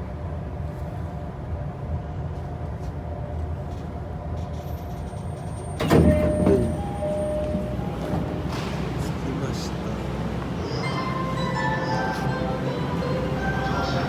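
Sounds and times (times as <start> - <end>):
train interior rumble: 0.0 - 14.0
sliding doors opening: 5.4 - 14.0.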